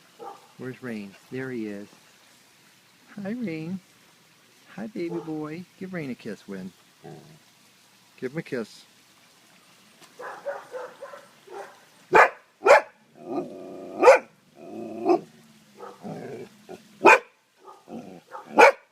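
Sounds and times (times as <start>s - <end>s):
dog barking: 0.2s - 0.6s, 5.1s - 5.4s, 10.2s - 13.0s, 14.0s - 14.3s, 15.8s - 16.2s, 17.0s - 18.9s.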